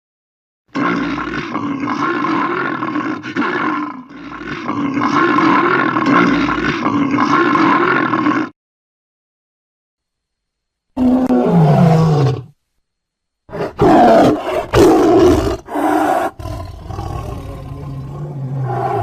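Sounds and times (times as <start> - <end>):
cartoon creature roaring: 0.7 - 8.6, 11.0 - 12.5, 13.5 - 19.0.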